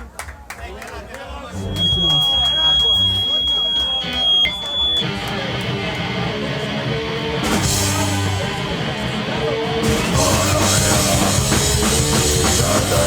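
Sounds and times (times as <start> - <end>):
electric guitar: 1.6 - 13.0
live rock band playing: 1.6 - 13.0
drums: 1.7 - 13.0.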